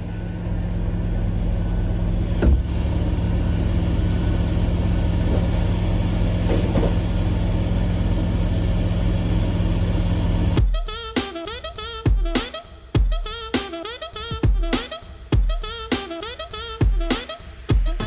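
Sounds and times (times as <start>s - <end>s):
construction machine engine running: 0.0s - 10.6s.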